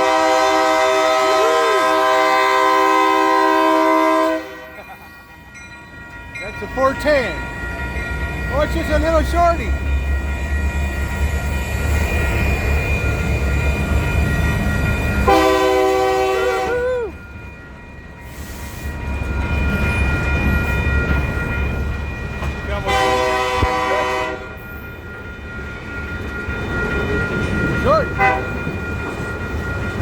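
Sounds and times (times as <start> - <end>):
train air horn chord: 0.0 - 4.8, 15.3 - 16.7, 22.9 - 24.5, 28.2 - 28.5
freight train rumbling past: 0.0 - 30.0.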